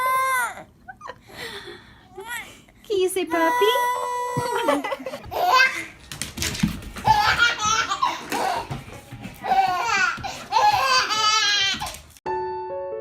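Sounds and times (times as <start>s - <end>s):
baby laughing: 4.4s - 6.0s, 7.0s - 8.8s, 9.4s - 12.0s.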